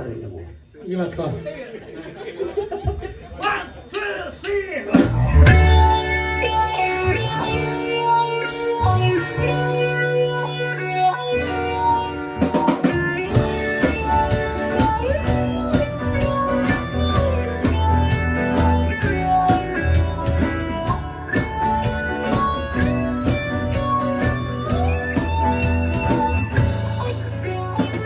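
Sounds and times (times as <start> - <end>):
drum kit: 2.9 - 28.0
guitar: 4.5 - 28.0
bass guitar: 4.9 - 28.0.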